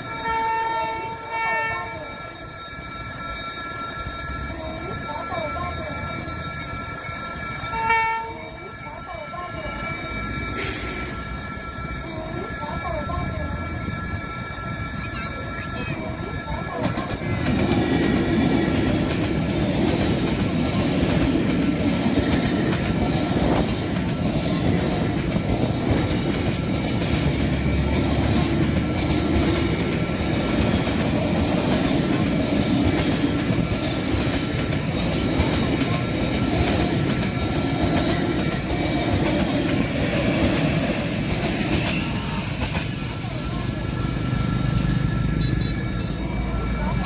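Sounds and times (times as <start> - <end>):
train wheels rumbling on rails: 0.0 - 47.0
high wheel squeal: 5.8 - 47.0.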